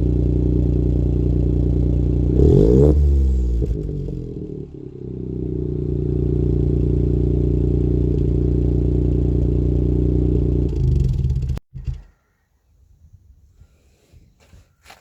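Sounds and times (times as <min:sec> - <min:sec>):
car engine idling: 0:00.0 - 0:11.6.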